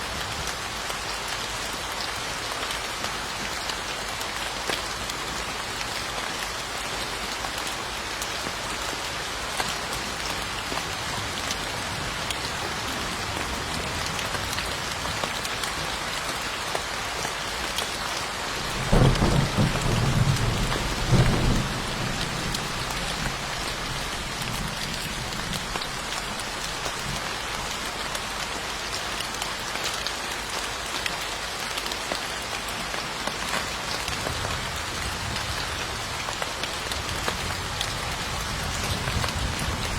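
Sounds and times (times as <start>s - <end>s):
steady rain falling: 0.0s - 39.9s
thunder rumbling: 18.7s - 27.2s.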